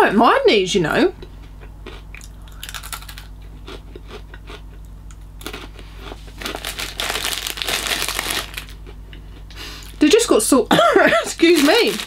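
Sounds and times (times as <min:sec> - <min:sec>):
chewing pretzel sticks: 0:01.6 - 0:10.0
plastic snack packet crinkling: 0:02.2 - 0:03.3, 0:06.3 - 0:08.9, 0:11.3 - 0:12.0.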